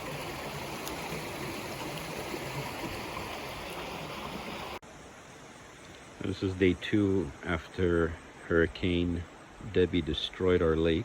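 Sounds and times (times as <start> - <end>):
floodwater rushing: 0.0 - 4.8.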